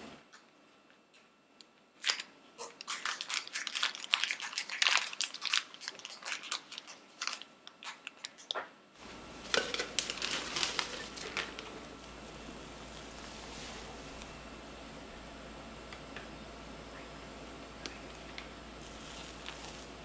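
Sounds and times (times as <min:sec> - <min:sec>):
plastic bag crinkling: 0:02.8 - 0:14.3, 0:18.1 - 0:20.0
low steady hum: 0:08.7 - 0:20.0.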